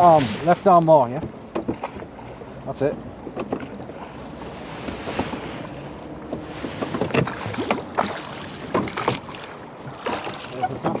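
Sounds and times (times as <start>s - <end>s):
oars splashing: 0.0s - 11.0s
oars knocking in oarlocks: 1.1s - 2.1s, 6.2s - 11.0s.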